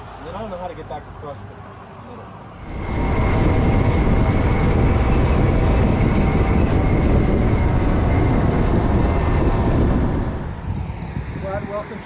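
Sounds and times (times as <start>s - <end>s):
road noise: 0.0s - 12.0s
rushing wind: 0.0s - 12.0s.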